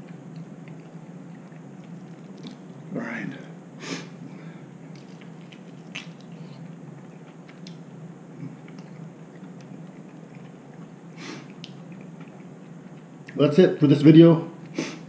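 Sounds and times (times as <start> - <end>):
person chewing food: 0.0 - 2.9, 4.8 - 13.4
low steady hum: 0.0 - 15.0.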